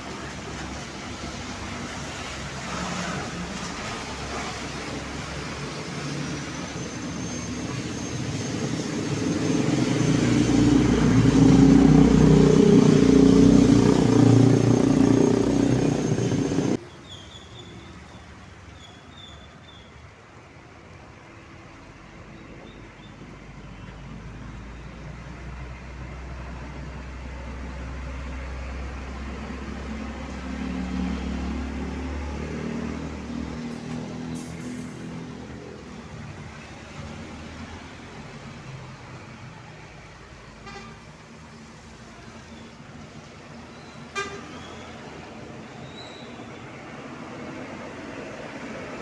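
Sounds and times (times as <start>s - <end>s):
heavy diesel vehicle engine: 0.0s - 16.8s, 23.3s - 49.0s
vehicle approaching: 0.0s - 16.8s, 21.4s - 40.6s
road noise: 0.0s - 49.0s.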